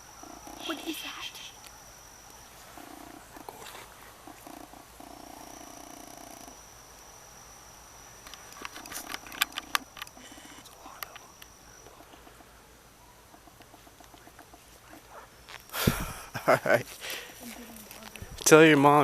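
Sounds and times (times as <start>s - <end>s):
low drawn-out animal calls: 0.0s - 1.6s, 2.6s - 6.7s
thin high steady tone: 0.0s - 19.0s.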